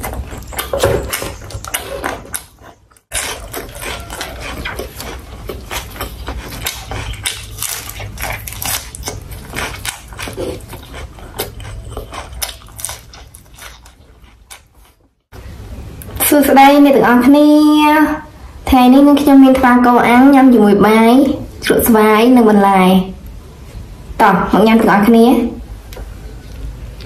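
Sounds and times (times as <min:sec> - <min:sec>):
person chewing food: 0:00.0 - 0:15.2.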